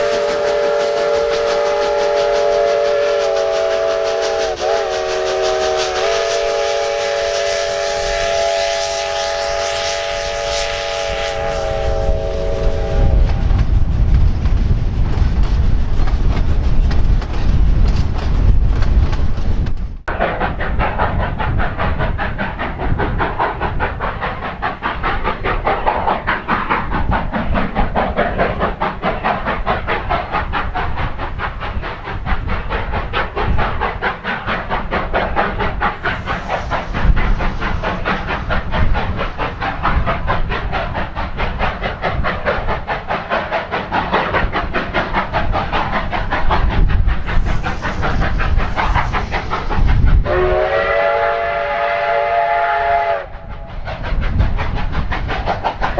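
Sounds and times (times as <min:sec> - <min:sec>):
steam hissing: 0:00.0 - 0:17.2, 0:20.1 - 0:55.9
steam locomotive exhaust beating: 0:00.0 - 0:55.9.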